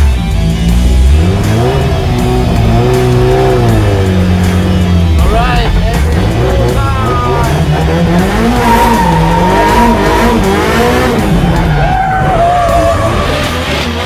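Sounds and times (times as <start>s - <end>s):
car engine revving: 0.0s - 14.0s
tyres squealing: 8.3s - 13.7s.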